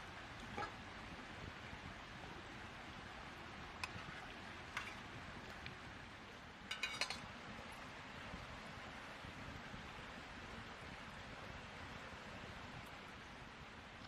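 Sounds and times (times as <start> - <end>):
steady low hiss: 0.0 - 14.0
utensils clinking on metal cookware: 6.7 - 7.2.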